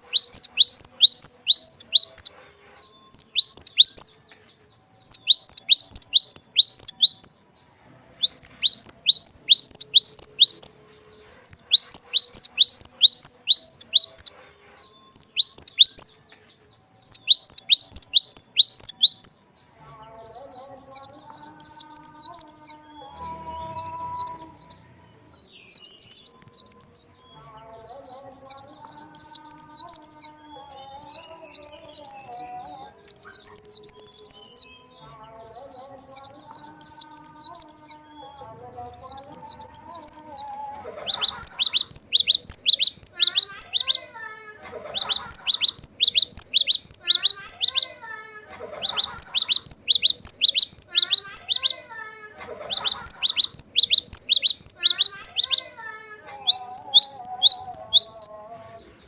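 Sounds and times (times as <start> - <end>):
bird singing high notes: 0.0 - 2.3, 3.0 - 4.2, 4.9 - 7.5, 8.2 - 14.4, 15.0 - 16.3, 16.9 - 19.4, 20.2 - 44.3, 45.0 - 48.2, 48.8 - 52.0, 52.7 - 58.5
low bird warbling: 20.2 - 27.1.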